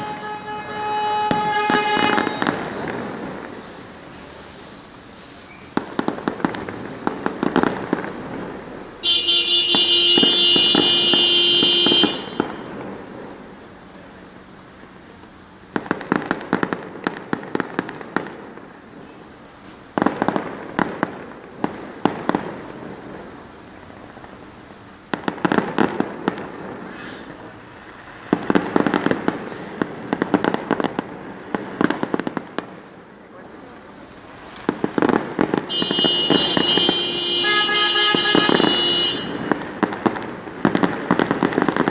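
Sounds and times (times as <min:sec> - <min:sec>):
loud held tone: 0:00.0 - 0:03.0, 0:09.0 - 0:12.8, 0:35.7 - 0:39.5
fireworks crackling pops: 0:00.0 - 0:41.9.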